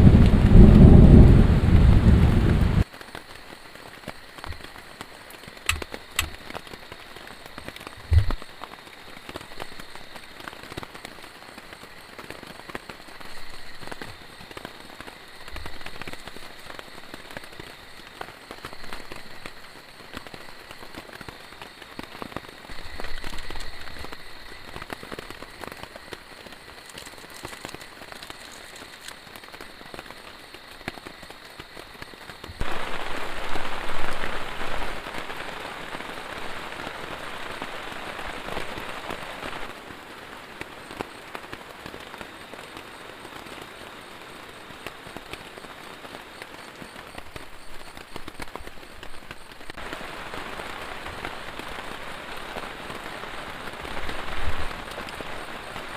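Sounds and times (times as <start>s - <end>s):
heavy rain falling: 0.0s - 55.9s
dense hiss: 3.4s - 10.8s.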